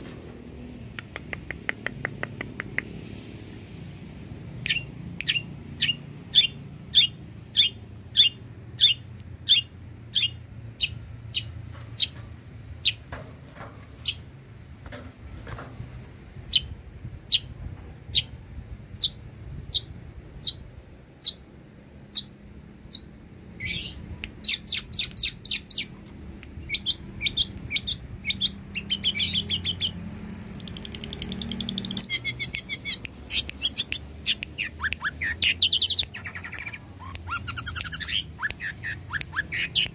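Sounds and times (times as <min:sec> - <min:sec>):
bird singing sharp chips: 0:04.6 - 0:14.3, 0:22.9 - 0:39.9
bird chattering trills: 0:04.7 - 0:12.2, 0:26.7 - 0:39.9.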